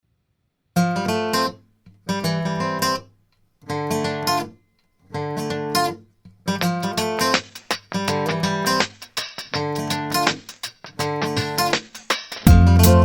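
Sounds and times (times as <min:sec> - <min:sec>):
acoustic guitar strumming chords: 0:06.5 - 0:08.9, 0:12.4 - 0:13.0.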